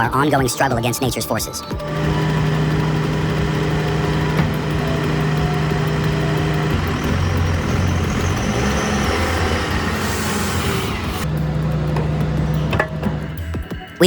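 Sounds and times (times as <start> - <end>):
heavy vehicle engine running: 1.8 - 13.7.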